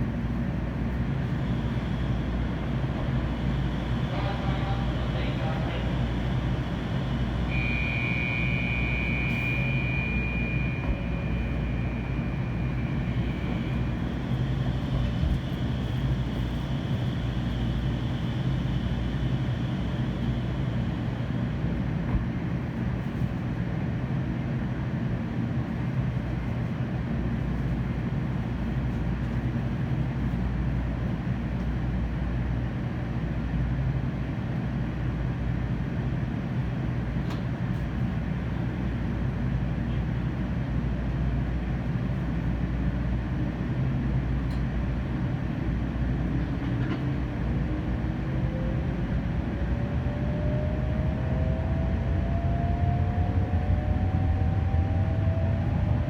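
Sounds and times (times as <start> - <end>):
train rumble and hum: 0.0 - 56.0
high whine: 6.6 - 15.2.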